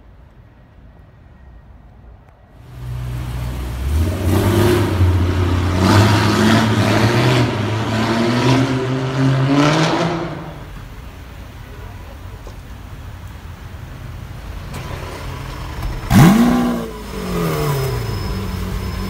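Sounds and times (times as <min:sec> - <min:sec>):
car engine revving in tunnel: 0:02.6 - 0:10.9, 0:15.2 - 0:19.0.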